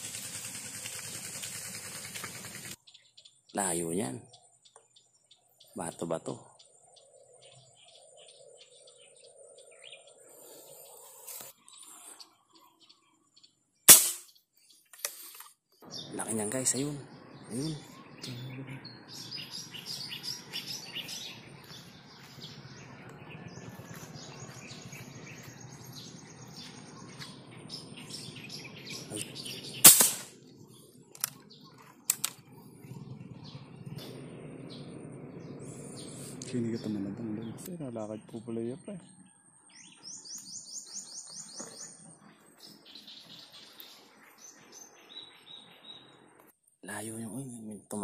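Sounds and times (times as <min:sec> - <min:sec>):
bird chattering: 0:00.0 - 0:04.9
birds chirping: 0:00.0 - 0:48.0.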